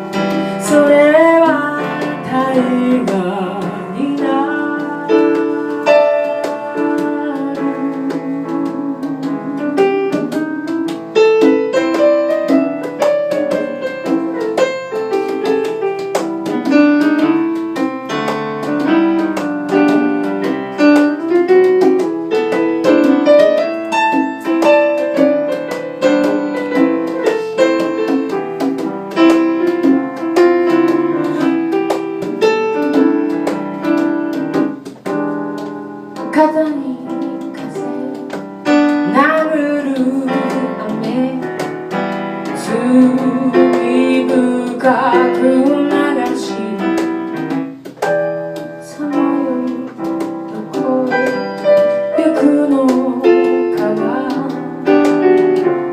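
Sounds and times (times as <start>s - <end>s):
piano playing pop ballad: 0.0s - 55.9s.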